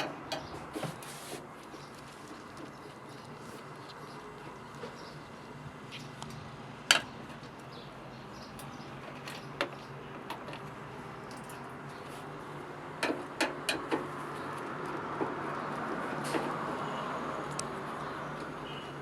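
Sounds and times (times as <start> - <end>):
sharp clicks and knocks: 13.0 - 14.2.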